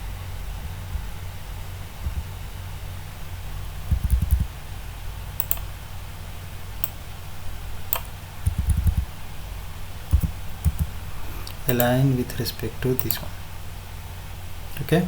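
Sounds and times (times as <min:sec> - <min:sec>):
keyboard key taps: 0:03.9 - 0:04.5, 0:07.9 - 0:09.1, 0:10.1 - 0:10.9
sharp clicks: 0:03.9 - 0:04.5, 0:05.4 - 0:05.7, 0:06.8 - 0:07.0, 0:07.9 - 0:09.1, 0:10.1 - 0:12.0, 0:12.9 - 0:13.3.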